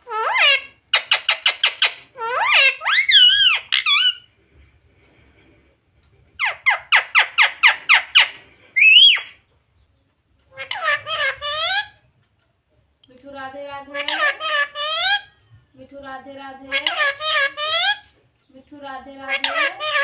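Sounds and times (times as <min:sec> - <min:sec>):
parakeet squawking: 0:00.0 - 0:04.3, 0:06.4 - 0:09.4, 0:10.5 - 0:12.0, 0:13.9 - 0:15.3, 0:16.7 - 0:18.1, 0:19.3 - 0:20.0.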